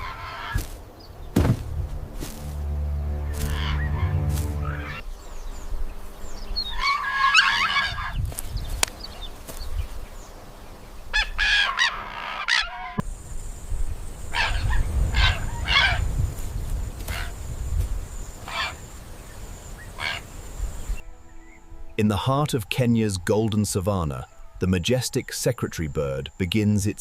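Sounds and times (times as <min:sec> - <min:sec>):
large bird calling harshly: 0:00.0 - 0:00.7, 0:03.3 - 0:05.0, 0:06.6 - 0:08.2, 0:11.1 - 0:13.0, 0:14.3 - 0:16.1, 0:17.0 - 0:17.4, 0:18.4 - 0:21.0
low rumble: 0:01.3 - 0:05.0.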